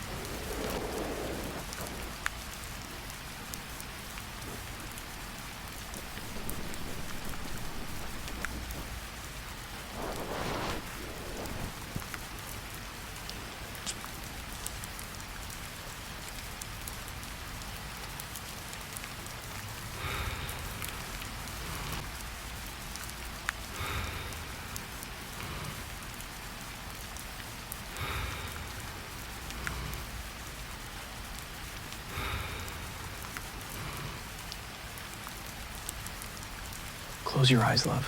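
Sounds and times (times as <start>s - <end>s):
slow soft breaths: 0.0s - 14.5s, 19.8s - 22.0s, 23.6s - 26.0s, 27.8s - 30.3s, 31.9s - 37.2s
steady rain falling: 0.0s - 38.0s.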